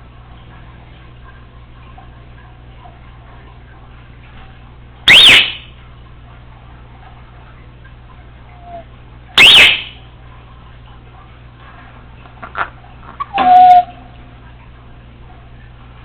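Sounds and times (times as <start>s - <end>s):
parrot whistled calls: 5.1s - 5.7s, 8.6s - 10.0s, 13.2s - 14.1s.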